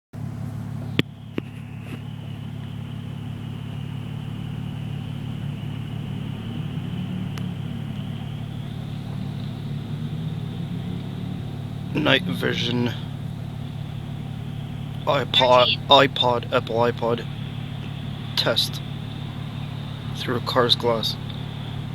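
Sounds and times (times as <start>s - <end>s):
car engine idling: 0.1s - 21.9s
faint high whine: 0.2s - 21.9s
sharp clicks: 3.5s - 12.0s.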